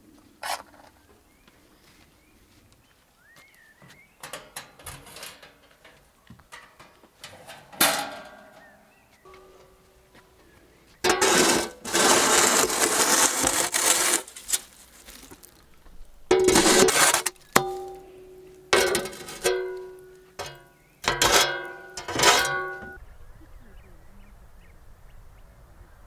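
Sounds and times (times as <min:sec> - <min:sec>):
scraping and rustling: 0:04.2 - 0:10.3, 0:10.9 - 0:23.0.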